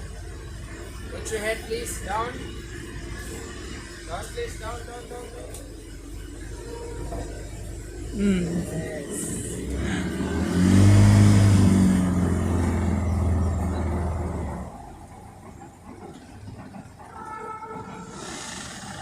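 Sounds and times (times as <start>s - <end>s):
outboard engine revving: 8.5s - 15.1s.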